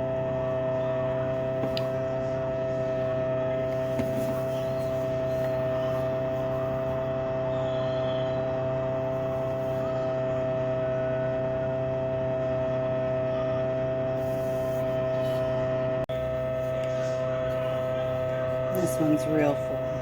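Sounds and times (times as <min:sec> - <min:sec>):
electrical hum with high tone: 0:00.0 - 0:20.0.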